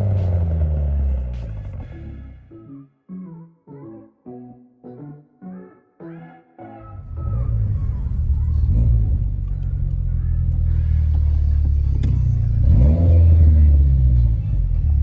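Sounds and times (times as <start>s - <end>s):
car engine accelerating: 0.0s - 2.5s, 7.0s - 15.0s.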